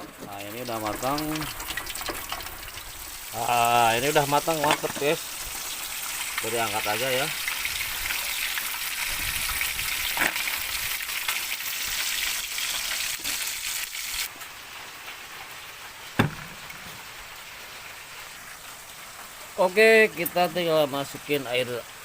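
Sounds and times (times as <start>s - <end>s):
fish sizzling in hot oil: 0.0s - 22.0s
sharp knock: 16.2s - 16.7s.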